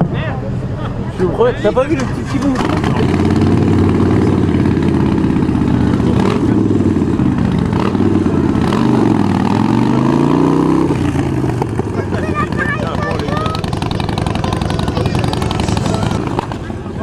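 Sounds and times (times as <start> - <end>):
motorcycle engine running at low revs: 2.4 - 17.0.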